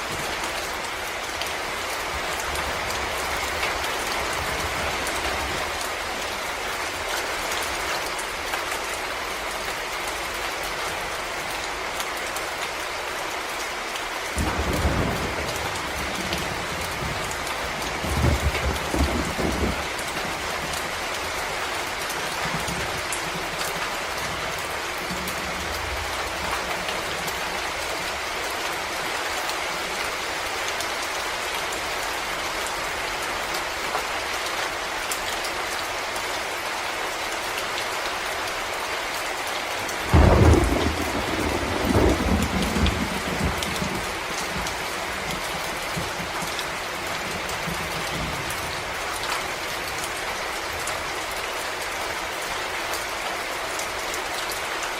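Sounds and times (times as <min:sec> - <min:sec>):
thunder rumbling: 0:00.0 - 0:08.5, 0:14.0 - 0:28.5, 0:39.8 - 0:51.5
rain on leaves: 0:00.0 - 0:54.9.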